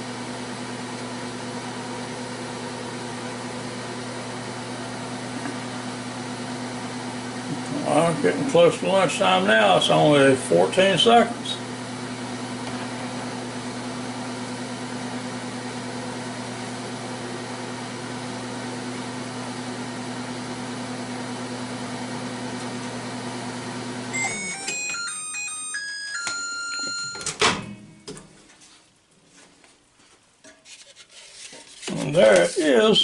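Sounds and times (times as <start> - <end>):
microwave oven humming: 0.0 - 29.2
microwave beeping tune: 24.0 - 28.1
microwave clunk: 26.2 - 28.3.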